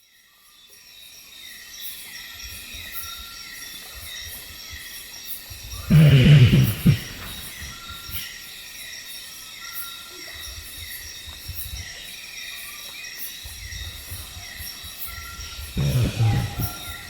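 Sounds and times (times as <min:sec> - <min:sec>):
insect trilling: 0:05.9 - 0:08.2, 0:15.8 - 0:17.0.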